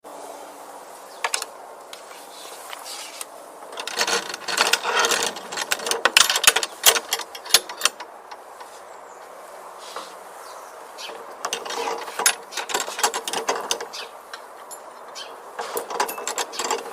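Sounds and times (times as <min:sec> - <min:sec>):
metallic lock clicks and rattles: 0:03.7 - 0:08.4, 0:11.1 - 0:16.9.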